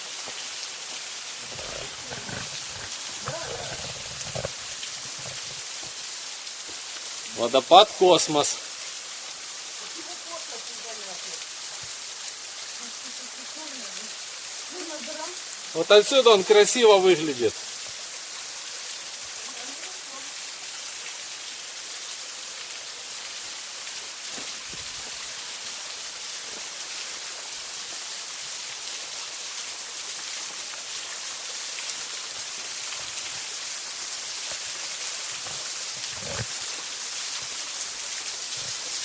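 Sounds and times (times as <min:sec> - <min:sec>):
waterfall rushing: 0:01.4 - 0:06.1, 0:07.2 - 0:08.7.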